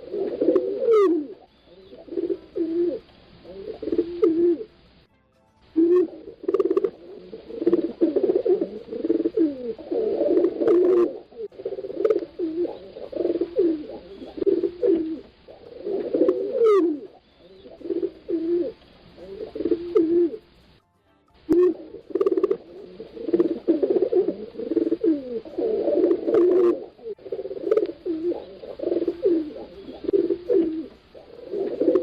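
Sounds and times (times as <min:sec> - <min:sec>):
pigeons cooing: 0:00.0 - 0:04.8, 0:05.8 - 0:20.6, 0:21.5 - 0:32.0
high rising chirp: 0:00.6 - 0:15.3.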